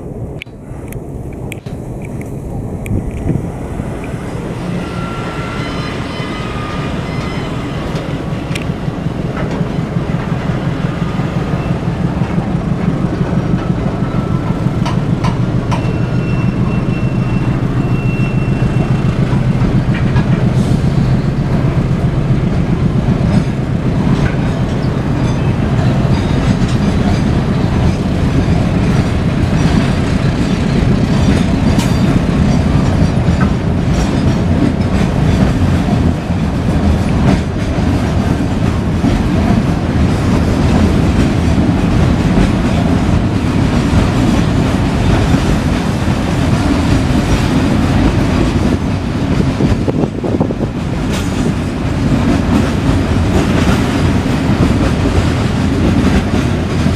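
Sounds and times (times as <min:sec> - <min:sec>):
locomotive engine drone: 0:00.0 - 0:56.9
wheels clacking over rail joints: 0:04.0 - 0:56.9
high wheel squeals: 0:04.2 - 0:08.4, 0:15.6 - 0:19.9.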